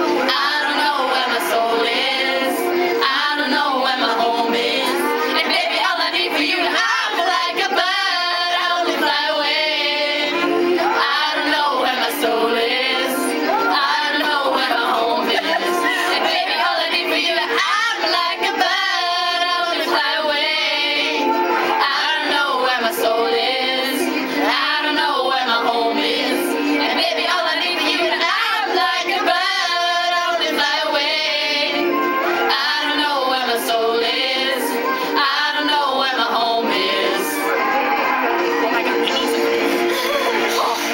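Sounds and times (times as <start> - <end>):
girls singing pop melody: 0.0 - 40.9.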